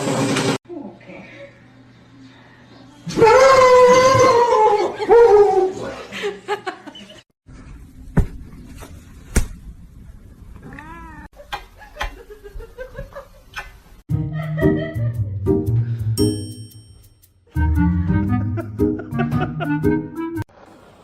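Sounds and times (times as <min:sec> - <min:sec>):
cat meowing: 0:10.6 - 0:11.3.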